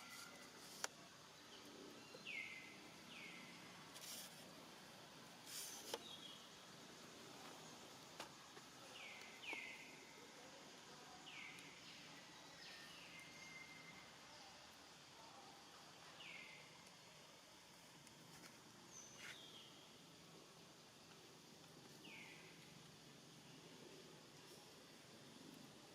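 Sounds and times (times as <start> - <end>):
hissing rustles: 3.9 - 4.6, 5.3 - 6.1.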